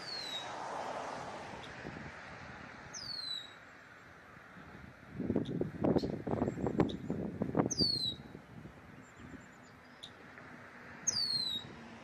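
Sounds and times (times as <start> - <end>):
songbird whistled calls: 0.0 - 0.5, 2.9 - 3.6, 7.7 - 8.3, 11.1 - 11.7.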